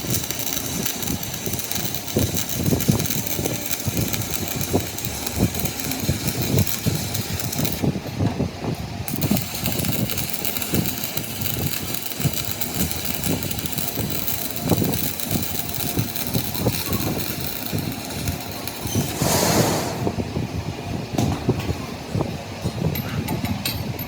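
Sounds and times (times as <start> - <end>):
short burst of hiss: 19.1 - 20.2.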